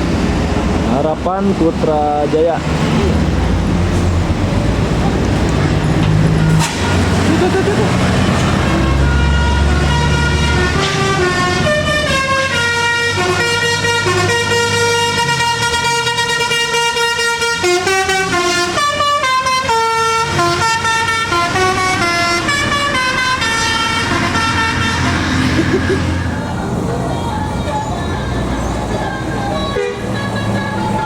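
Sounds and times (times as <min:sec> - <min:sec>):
bus engine rumble: 0:00.0 - 0:31.0
multi-tone air horn melody: 0:08.7 - 0:25.9, 0:29.6 - 0:31.0.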